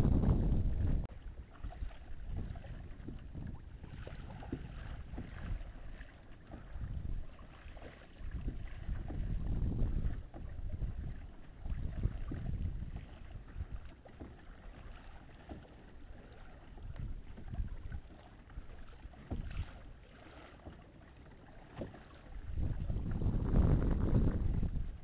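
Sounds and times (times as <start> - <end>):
wind buffeting microphone: 0.0 - 7.5, 8.2 - 13.9, 16.8 - 18.0, 22.3 - 25.0
water splashing around kayak: 0.0 - 25.0.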